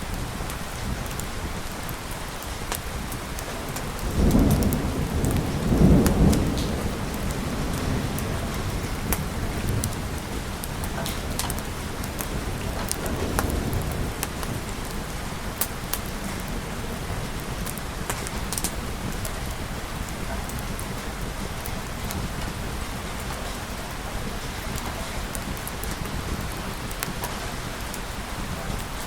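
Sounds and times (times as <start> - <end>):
rain falling on a surface: 0.0 - 29.0.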